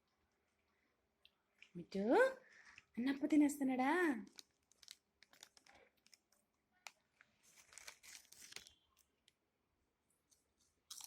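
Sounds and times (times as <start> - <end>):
snack wrapper crinkling: 4.2 - 9.4.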